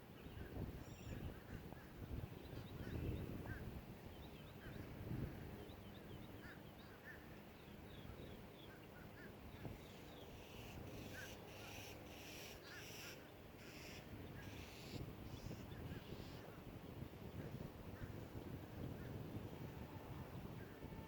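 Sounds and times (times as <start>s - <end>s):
distant bird chirps: 5.6s - 16.4s.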